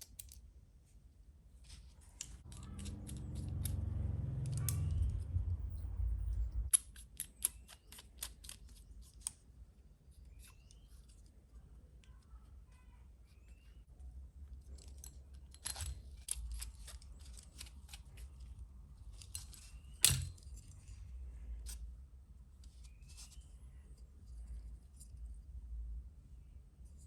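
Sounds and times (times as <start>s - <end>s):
hand tools clicking and snipping: 2.2s - 5.2s, 6.7s - 9.4s.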